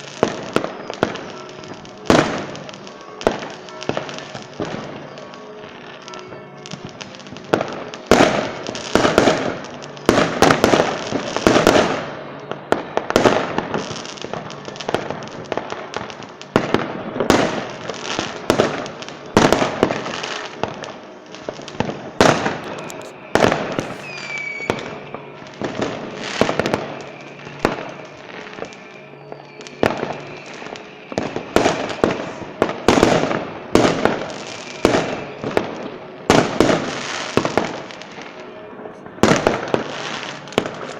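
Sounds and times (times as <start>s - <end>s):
firework bangs with crackling tails: 0.0s - 40.9s
firework whistle: 0.0s - 40.9s.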